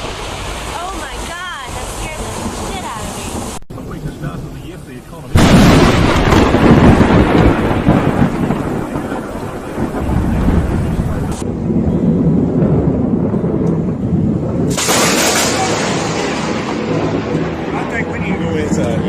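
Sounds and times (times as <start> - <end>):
rain: 0.0 - 19.0
thunder rumbling: 0.0 - 19.0.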